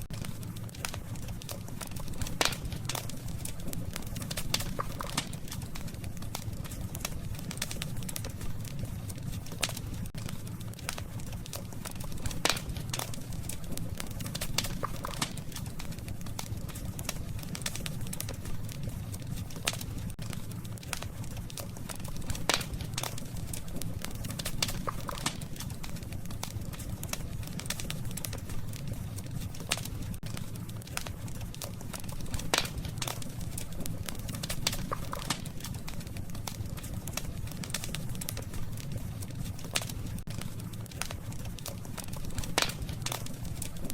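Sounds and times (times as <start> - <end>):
campfire crackling: 0.0 - 43.9.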